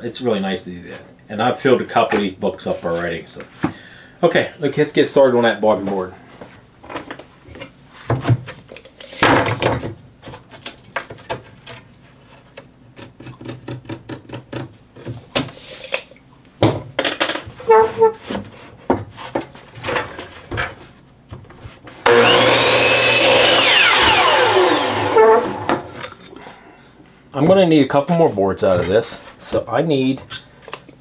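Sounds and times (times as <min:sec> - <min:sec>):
wooden boards knocking and scraping: 0:22.1 - 0:26.0
power saw running: 0:22.1 - 0:26.1.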